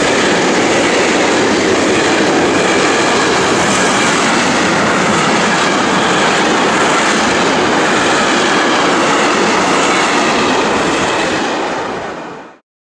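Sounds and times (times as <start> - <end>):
steel train wheels on rails: 0.0 - 12.6.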